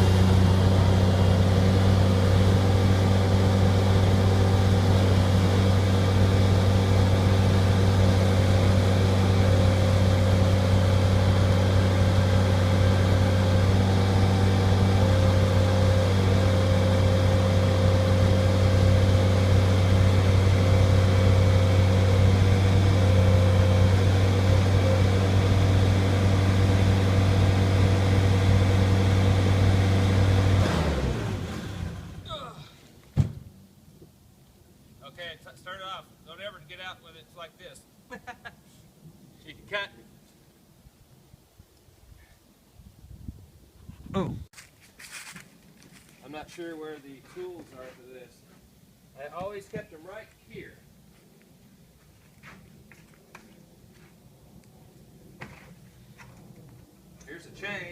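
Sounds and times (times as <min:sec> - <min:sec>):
loader engine running: 0:00.0 - 0:32.3.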